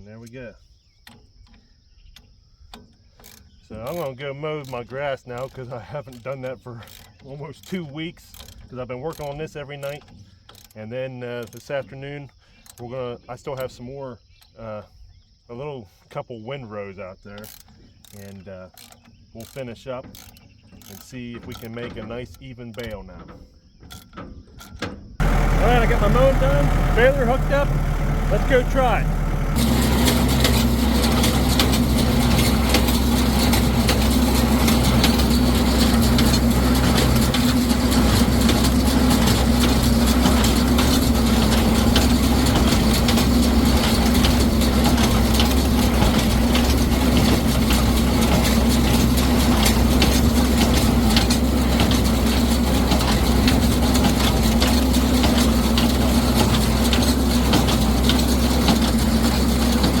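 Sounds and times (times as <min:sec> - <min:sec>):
tractor engine under load: 0:00.1 - 0:13.9, 0:15.5 - 1:00.0
baler rattling and clattering: 0:18.7 - 1:00.0.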